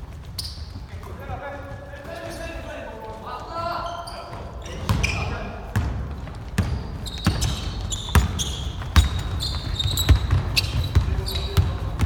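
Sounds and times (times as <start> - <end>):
sneaker squeaks: 0.0 - 12.0
basketball bouncing on hardwood floor: 4.3 - 12.0.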